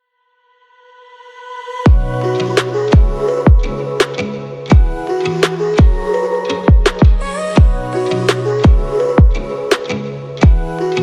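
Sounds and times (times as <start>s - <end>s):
heavy bass kick: 1.9s - 3.8s, 4.7s - 5.0s, 5.8s - 6.1s, 6.7s - 7.9s, 8.6s - 9.5s, 10.4s - 10.8s
synth chords: 1.9s - 11.0s.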